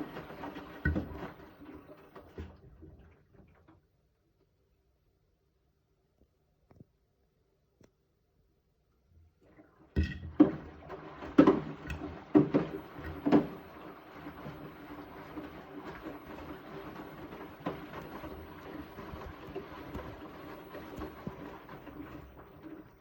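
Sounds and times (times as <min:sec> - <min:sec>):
washing machine knocking: 0:00.0 - 0:02.8, 0:10.0 - 0:23.0
washing machine running: 0:00.0 - 0:03.8, 0:09.4 - 0:23.0.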